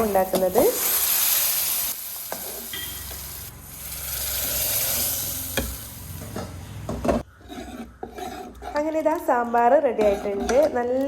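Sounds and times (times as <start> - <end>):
hot oil sizzling in a pan: 0.5 - 6.2
spoon clinking against pan: 2.7 - 3.2.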